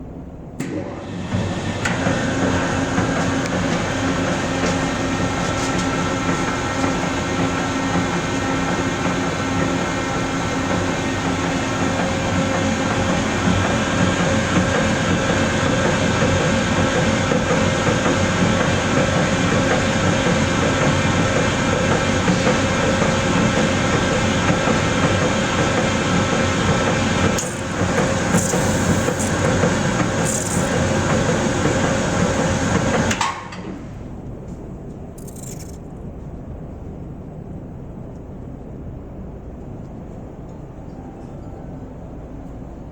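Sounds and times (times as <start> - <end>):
machine running: 26.4 - 32.3, 35.2 - 35.8.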